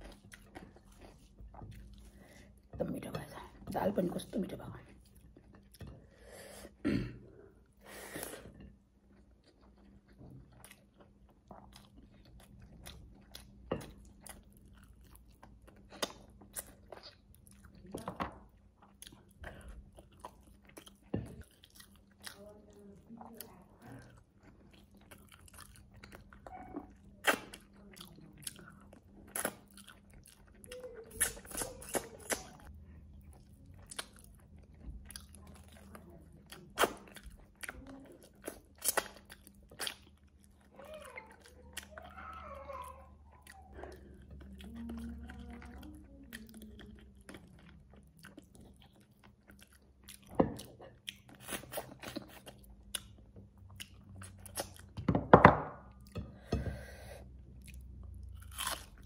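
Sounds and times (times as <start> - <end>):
chewing and biting meat: 18.8 - 22.6, 23.3 - 42.1, 43.3 - 55.0, 57.5 - 59.0.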